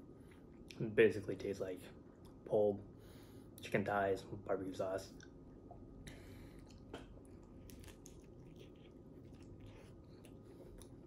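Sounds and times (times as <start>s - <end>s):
soft mouth clicks and crunches: 6.0s - 11.0s
person chewing: 6.1s - 11.0s.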